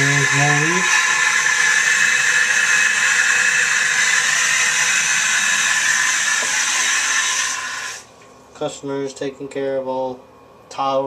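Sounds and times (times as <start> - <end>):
toilet tank refilling hiss: 0.0 - 8.1.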